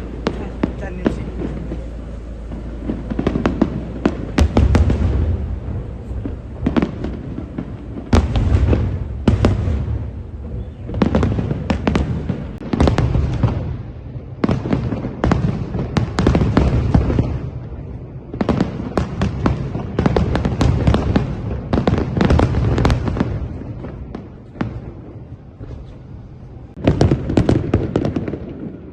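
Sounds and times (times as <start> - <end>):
deep rumble: 0.0 - 19.0
fireworks bursting with cracks: 0.0 - 28.9.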